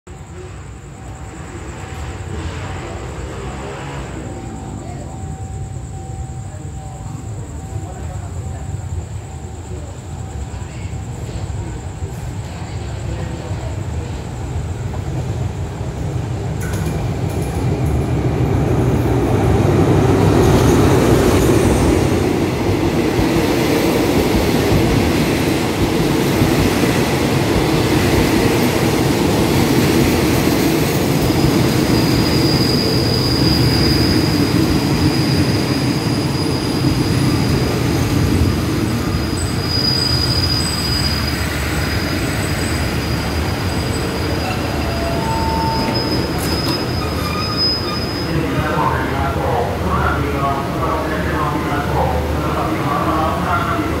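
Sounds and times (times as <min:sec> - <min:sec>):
train coaches rolling past: 0:00.1 - 0:54.0
wheel and brake squeal: 0:31.9 - 0:37.5, 0:39.0 - 0:48.5.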